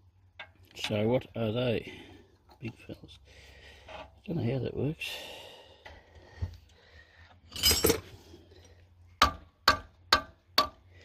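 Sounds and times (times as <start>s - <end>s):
metal hand tools clinking: 7.5s - 8.1s.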